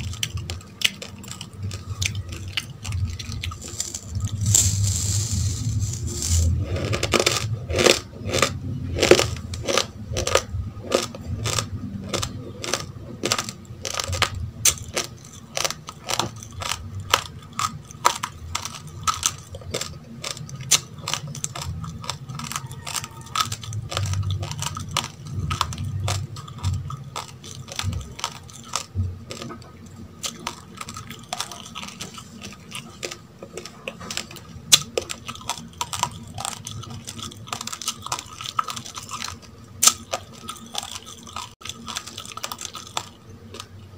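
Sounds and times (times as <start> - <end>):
crunching uncooked rice: 0.0 - 43.8.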